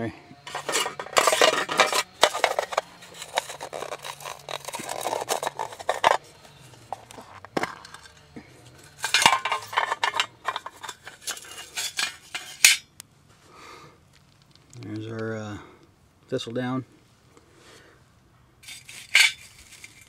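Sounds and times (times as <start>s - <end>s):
metal tin clinking and scraping: 0.4s - 12.9s, 18.6s - 20.0s.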